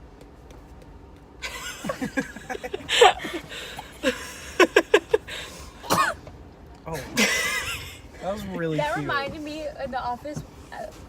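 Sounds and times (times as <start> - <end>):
breathy laughter: 1.5 - 5.5.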